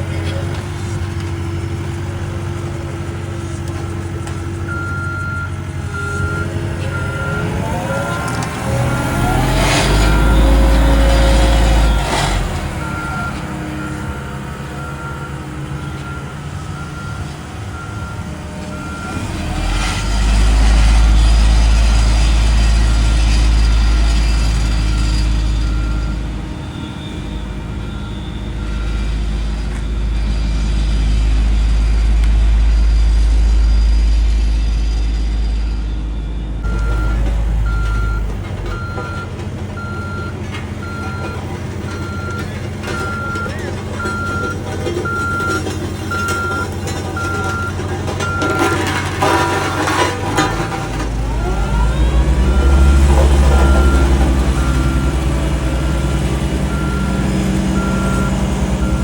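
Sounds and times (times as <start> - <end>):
diesel machinery engine rumbling: 0.0 - 59.0
backup alarm beeping: 4.7 - 20.1, 35.6 - 49.5, 51.0 - 59.0.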